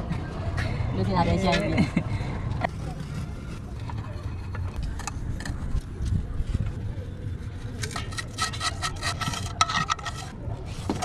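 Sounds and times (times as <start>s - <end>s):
metal tools scraping and clinking: 7.8s - 11.0s.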